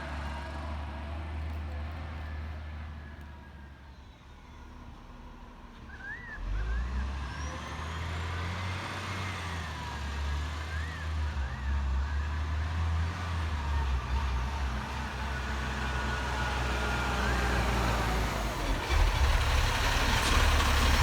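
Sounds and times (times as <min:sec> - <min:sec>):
garbage truck engine running: 0:13.5 - 0:21.0.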